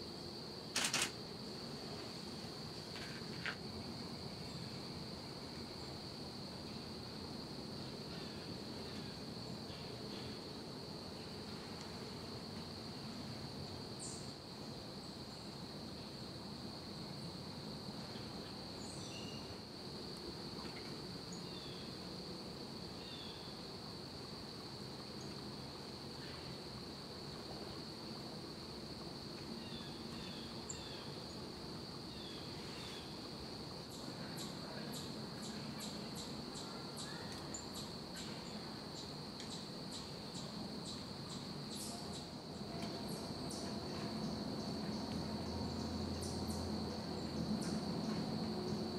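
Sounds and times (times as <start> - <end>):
high insect trill: 0.0 - 48.9.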